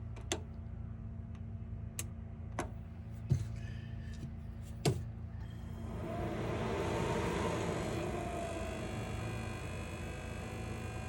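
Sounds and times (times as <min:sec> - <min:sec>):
heater low hum: 0:00.0 - 0:11.0
blower fan whirring: 0:03.2 - 0:11.0.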